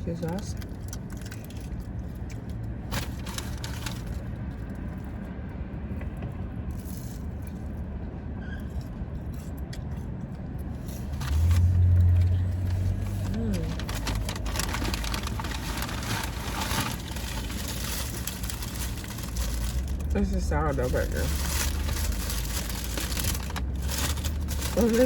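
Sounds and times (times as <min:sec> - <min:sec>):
packaging rustling: 0:02.9 - 0:04.2, 0:11.2 - 0:25.0
low rumble: 0:10.5 - 0:25.0
car engine idling: 0:11.1 - 0:25.0.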